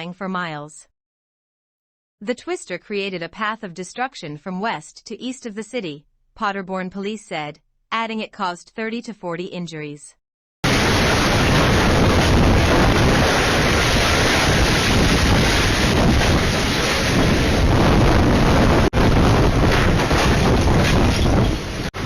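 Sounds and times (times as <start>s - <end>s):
strong wind on microphone: 10.7s - 22.0s.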